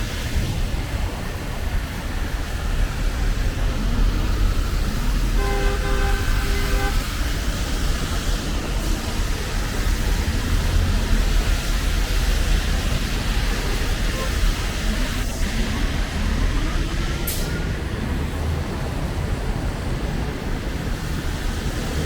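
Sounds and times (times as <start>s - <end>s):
city street traffic rumble: 0.0s - 22.0s
vehicle horn toots: 5.3s - 7.2s, 14.0s - 14.7s.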